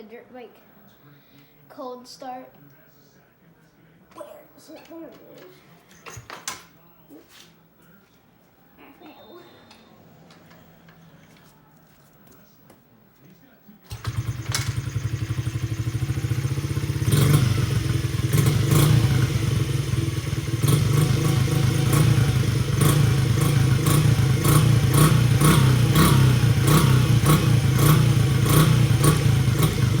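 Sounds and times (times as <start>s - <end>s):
dirt bike engine starting and running: 13.9s - 30.0s.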